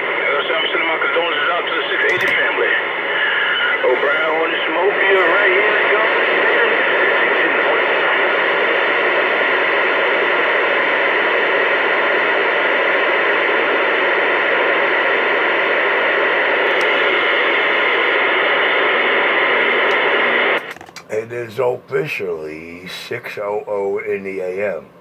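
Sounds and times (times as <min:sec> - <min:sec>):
radio static hiss: 0:00.0 - 0:25.0.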